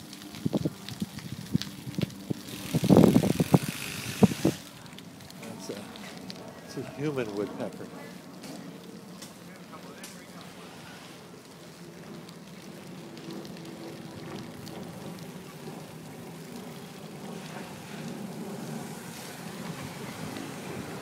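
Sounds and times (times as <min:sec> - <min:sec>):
bicycle tyres rumbling on pavement: 0:00.0 - 0:21.0
wind on microphone: 0:00.2 - 0:04.7, 0:17.2 - 0:21.0.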